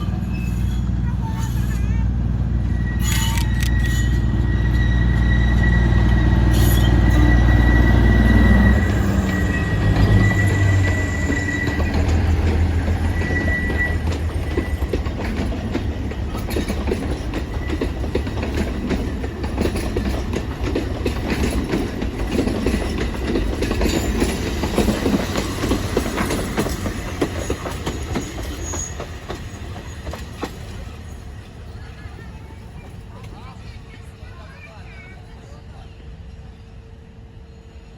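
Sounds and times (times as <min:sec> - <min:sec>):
wheel squeal: 0:00.0 - 0:15.0, 0:24.0 - 0:30.6
train rumbling: 0:00.0 - 0:37.9
wheels clicking over rail joints: 0:08.9 - 0:33.8.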